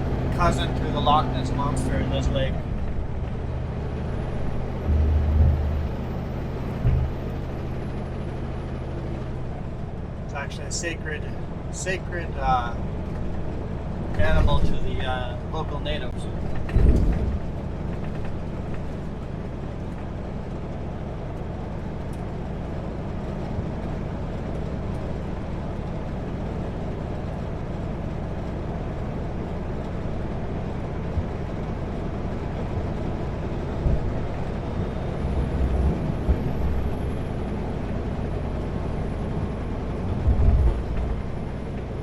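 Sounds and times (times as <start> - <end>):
truck engine and road noise: 0.0 - 42.0
low thumps: 2.7 - 8.0, 35.4 - 36.9.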